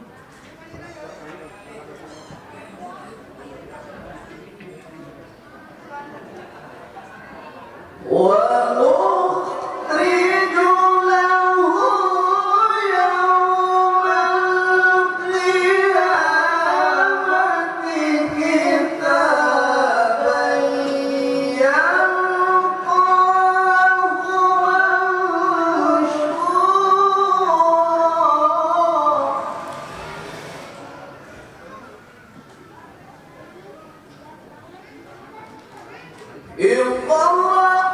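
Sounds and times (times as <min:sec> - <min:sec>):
person reciting in melodic chant: 0:08.0 - 0:29.8, 0:36.5 - 0:37.9.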